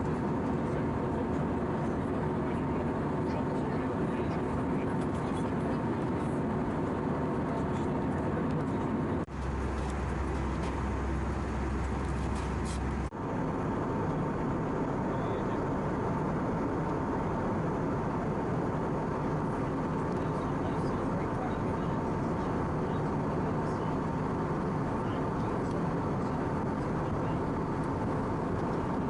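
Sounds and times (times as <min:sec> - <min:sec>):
airplane cabin roar: 0:00.0 - 0:29.0
faint steady hum: 0:09.2 - 0:29.0.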